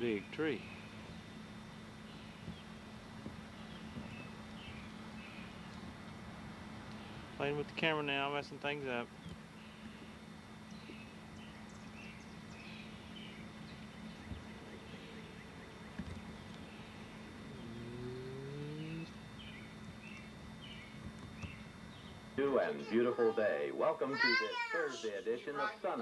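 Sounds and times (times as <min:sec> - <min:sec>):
small birds chirping: 0:00.0 - 0:26.0
vehicle engine accelerating: 0:17.2 - 0:20.8.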